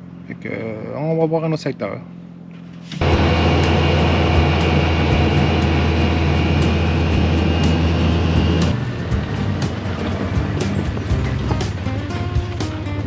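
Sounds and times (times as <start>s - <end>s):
vehicle engine hum: 0.0s - 13.0s
rushing noise: 3.0s - 13.0s.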